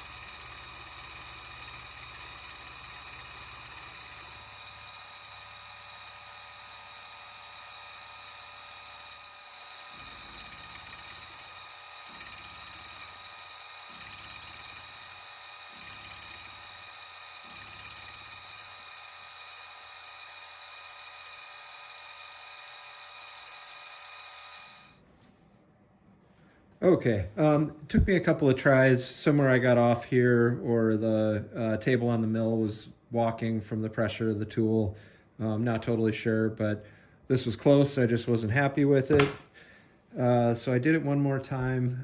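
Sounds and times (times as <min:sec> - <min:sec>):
milling machine whining: 0:00.0 - 0:25.0.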